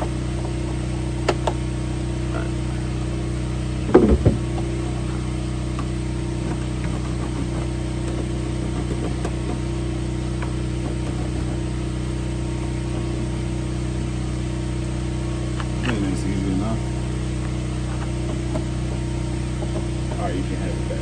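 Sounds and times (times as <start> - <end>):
engine idling: 0.0 - 21.0
sharp knock: 3.9 - 4.4.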